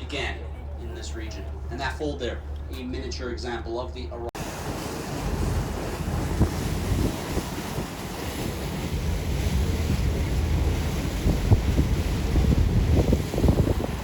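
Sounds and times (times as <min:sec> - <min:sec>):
boat engine running: 0:00.0 - 0:14.0
water noise: 0:00.0 - 0:14.0
wind buffeting microphone: 0:04.4 - 0:14.0.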